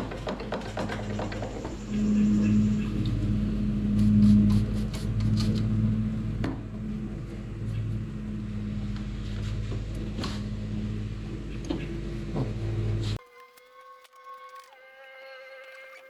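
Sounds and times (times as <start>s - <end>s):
low machine hum: 1.1s - 13.2s.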